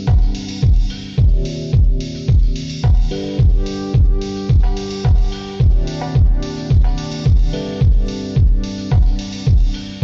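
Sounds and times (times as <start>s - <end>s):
deep kick drum: 0.0s - 10.0s
held chords: 0.0s - 10.0s.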